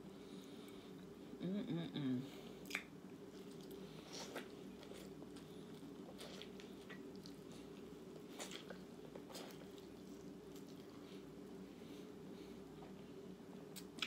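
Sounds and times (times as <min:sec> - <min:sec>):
mouth clicks and smacks: 0:02.6 - 0:03.0
chewing food: 0:02.6 - 0:11.3.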